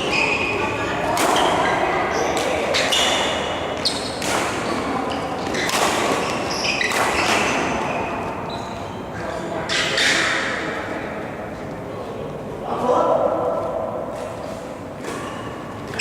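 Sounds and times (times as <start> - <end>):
shoes squeaking on floor: 0.0 - 1.8, 2.7 - 10.1, 15.1 - 16.0
sports hall hum: 0.0 - 16.0
racket hitting shuttlecock: 1.0 - 1.8, 2.4 - 7.9.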